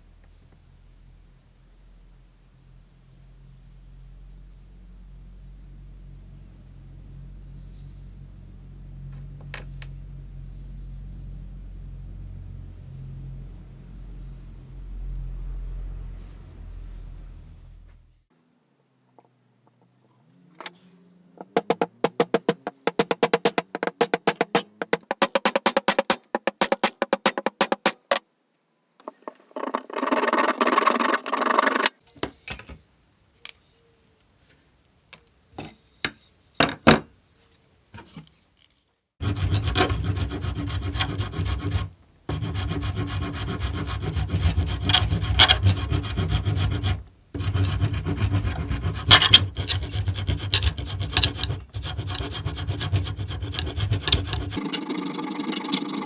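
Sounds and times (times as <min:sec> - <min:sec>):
rubbing on hammer: 0:20.6 - 0:28.2, 0:29.0 - 0:32.0, 0:54.6 - 0:56.0
scraping strokes on metal: 0:20.6 - 0:28.2, 0:29.0 - 0:32.0, 0:54.6 - 0:56.0.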